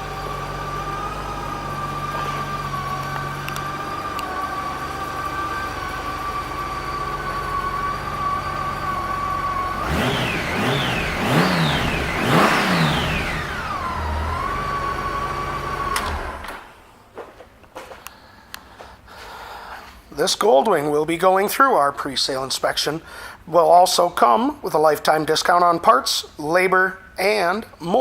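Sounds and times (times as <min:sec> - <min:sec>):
motorcycle engine idling and revving: 0:00.0 - 0:16.7.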